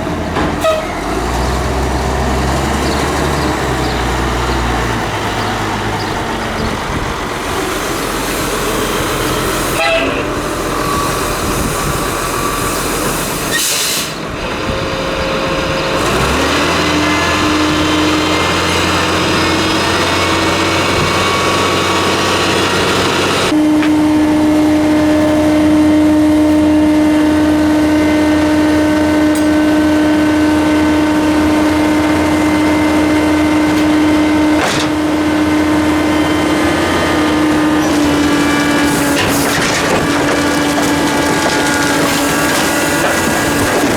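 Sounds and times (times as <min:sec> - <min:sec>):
diesel truck engine running: 0:00.0 - 0:43.9
hydraulic pump whine: 0:22.6 - 0:43.9.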